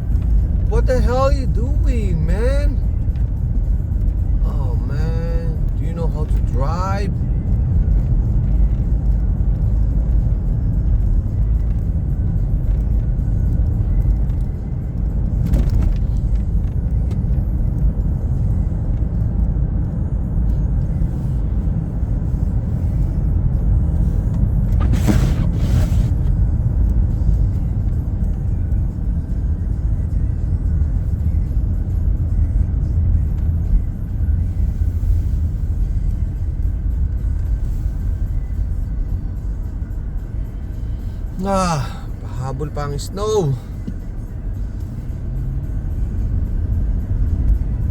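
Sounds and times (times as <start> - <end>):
car road and engine rumble: 0.0 - 47.9
brief hiss: 24.8 - 26.2.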